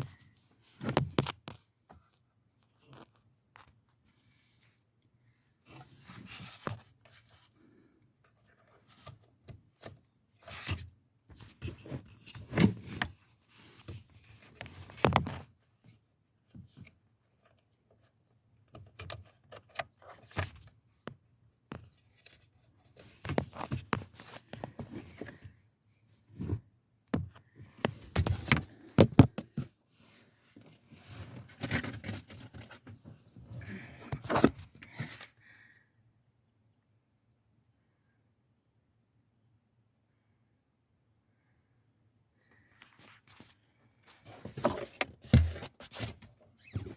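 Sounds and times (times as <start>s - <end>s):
tools scraping and clicking on plastic: 44.3s - 46.9s.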